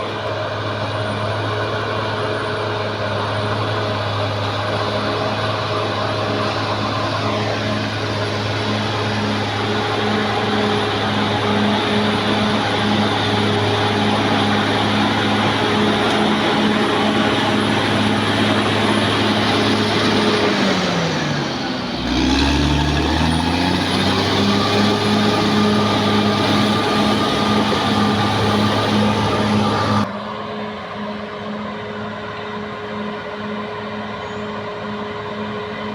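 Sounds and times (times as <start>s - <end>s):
bulldozer diesel engine running: 0.0s - 35.9s.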